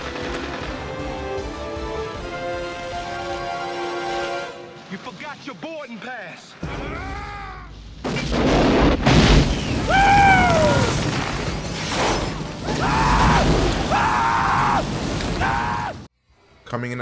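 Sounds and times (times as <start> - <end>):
loud explosion blast: 8.1 - 11.6.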